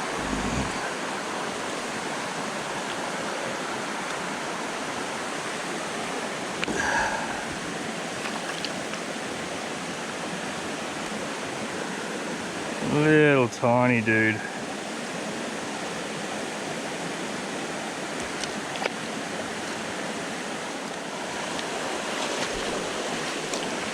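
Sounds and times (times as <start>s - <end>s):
creek running over rocks: 0.0s - 13.4s, 14.6s - 23.9s.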